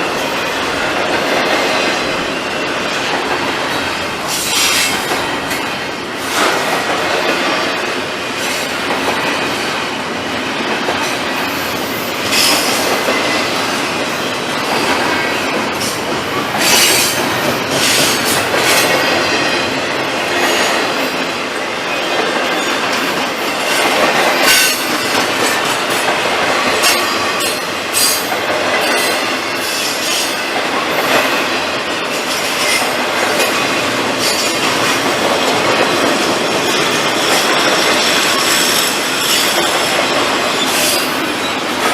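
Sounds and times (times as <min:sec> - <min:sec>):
freight train cars clattering: 0:00.0 - 0:41.9
train wheels squealing: 0:11.5 - 0:13.6, 0:36.1 - 0:41.9.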